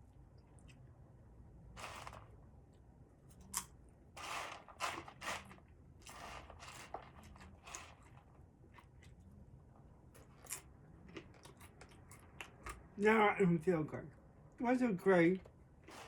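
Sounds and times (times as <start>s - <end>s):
person chewing crunchy food: 10.2s - 12.8s.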